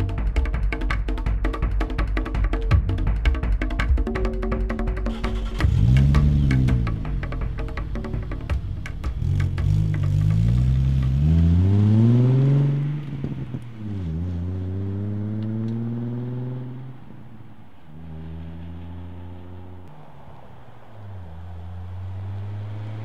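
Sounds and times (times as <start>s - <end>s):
car exhaust accelerating: 5.1s - 23.0s.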